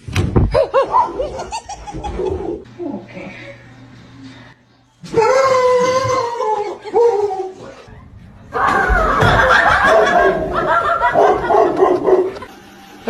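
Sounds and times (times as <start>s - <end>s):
person laughing loudly: 8.7s - 12.5s.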